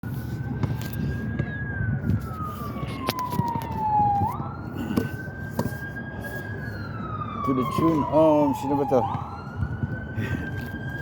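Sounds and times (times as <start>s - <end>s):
emergency vehicle siren wailing: 0.0s - 11.0s
wind on microphone: 0.4s - 4.7s.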